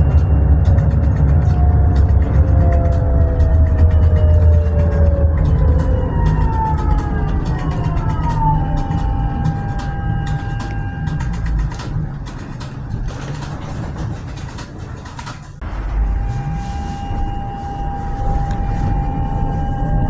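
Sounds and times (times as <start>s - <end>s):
electric whine: 0.0s - 12.2s, 15.6s - 20.0s
clicks: 0.0s - 15.9s
tram wheels rumbling on rails: 0.0s - 20.0s.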